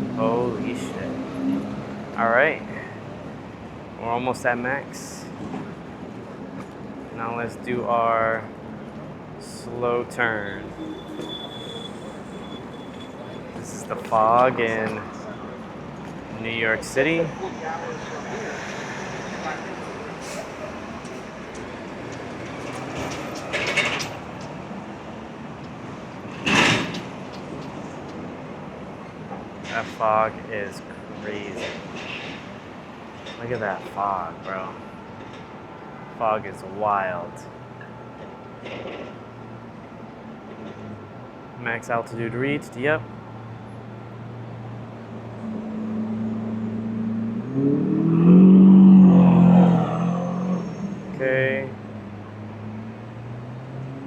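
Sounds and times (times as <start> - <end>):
city traffic noise: 0.0 - 54.0
vehicle engine revving: 45.4 - 51.2.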